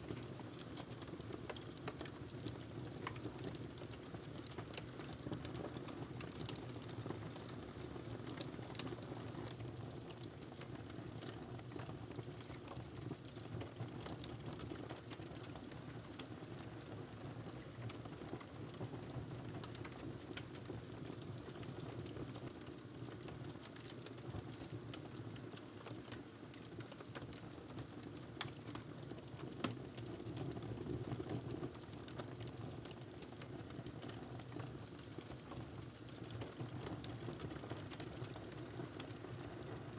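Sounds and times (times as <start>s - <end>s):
wood fire crackling: 0.1s - 8.9s, 22.5s - 39.6s.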